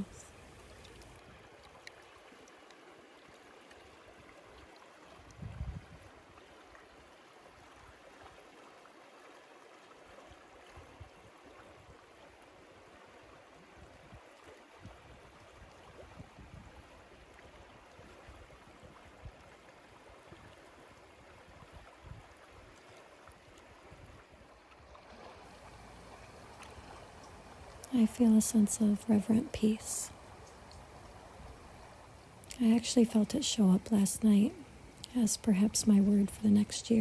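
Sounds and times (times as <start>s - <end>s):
outdoor background rush: 24.9s - 37.0s.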